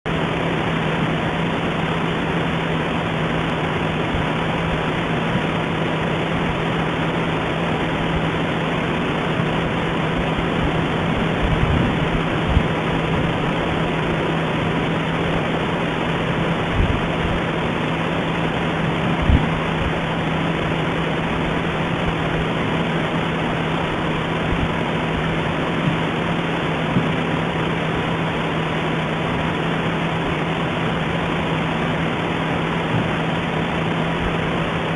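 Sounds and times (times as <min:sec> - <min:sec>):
low steady hum: 0:00.1 - 0:34.9.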